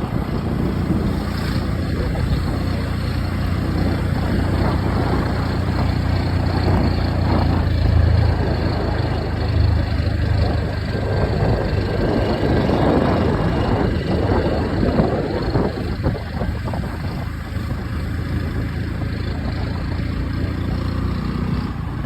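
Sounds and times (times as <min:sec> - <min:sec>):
motorcycle engine humming: 0:00.0 - 0:22.0
road and air noise: 0:00.0 - 0:22.0.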